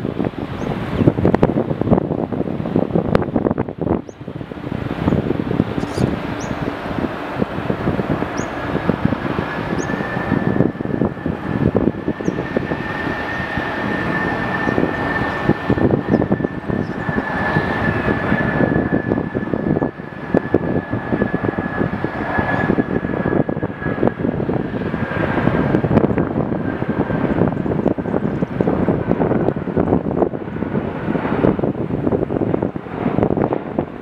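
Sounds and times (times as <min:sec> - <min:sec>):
jet engines rumbling: 0:00.0 - 0:34.0
steady high whine: 0:00.0 - 0:34.0.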